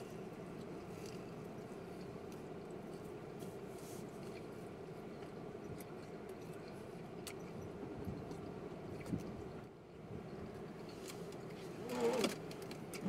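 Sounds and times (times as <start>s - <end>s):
low hum inside car: 0.0s - 13.0s
people chewing: 0.6s - 9.5s.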